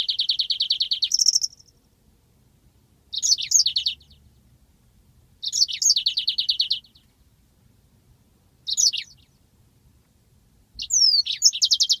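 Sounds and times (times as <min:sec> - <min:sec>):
canary singing chirps and trills: 0:00.0 - 0:01.9, 0:03.0 - 0:04.6, 0:05.4 - 0:07.3, 0:08.6 - 0:09.5, 0:10.7 - 0:12.0.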